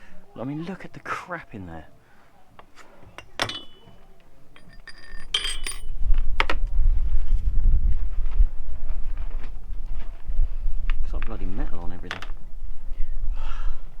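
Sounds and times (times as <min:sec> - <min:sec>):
small metal parts clinking: 0:03.2 - 0:06.0.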